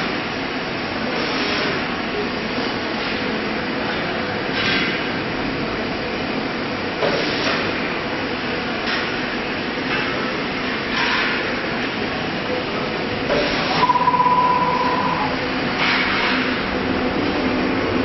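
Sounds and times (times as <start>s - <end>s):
cnc router whirring: 13.3s - 15.7s.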